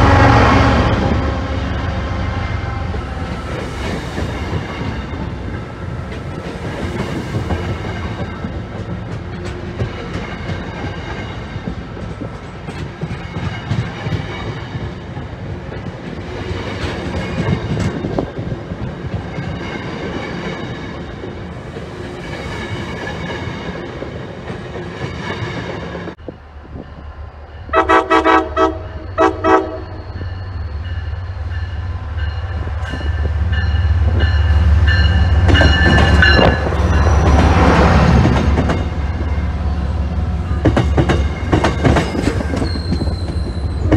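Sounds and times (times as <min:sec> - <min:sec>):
train wheel clatter: 0:02.5 - 0:26.3, 0:29.8 - 0:39.6, 0:40.5 - 0:43.9
train horn short blasts: 0:27.7 - 0:30.0.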